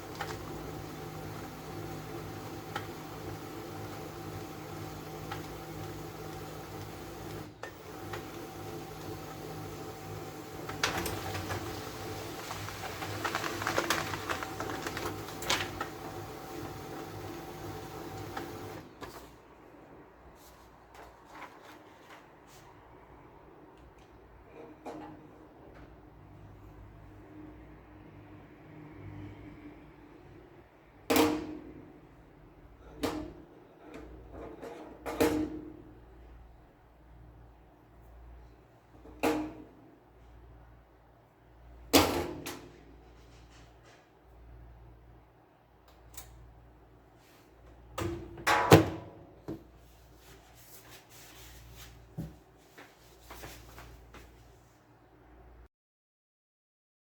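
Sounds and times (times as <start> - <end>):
laser printer humming: 0.0 - 18.9.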